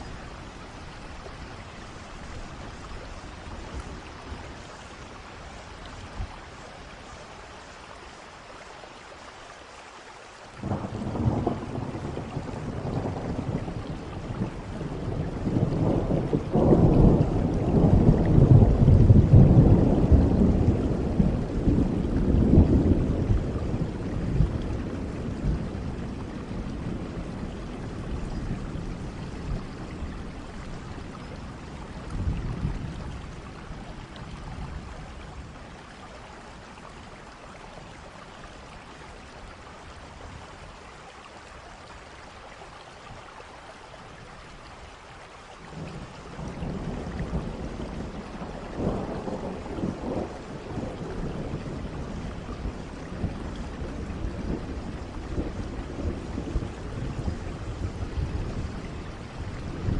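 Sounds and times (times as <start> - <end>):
steady rain: 0.0 - 59.9
rolling thunder: 10.6 - 35.6, 45.7 - 59.9.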